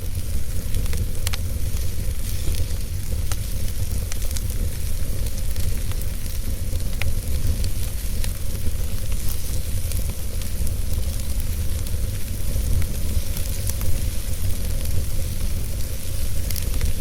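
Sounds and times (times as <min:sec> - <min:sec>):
fire crackling and popping: 0:00.0 - 0:17.0
low rumble of flames: 0:00.0 - 0:17.0.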